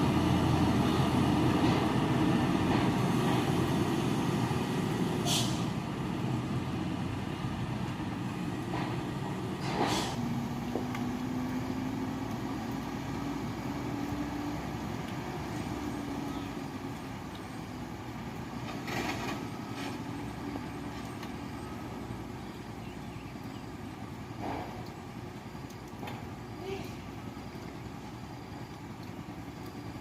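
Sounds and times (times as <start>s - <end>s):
truck diesel engine rumbling: 0.0s - 30.0s
short air hisses: 5.2s - 5.8s, 9.6s - 10.2s.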